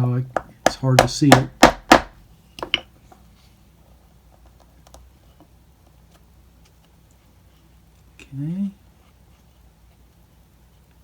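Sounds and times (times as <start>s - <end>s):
hammer tapping leather punch: 0.4s - 2.2s.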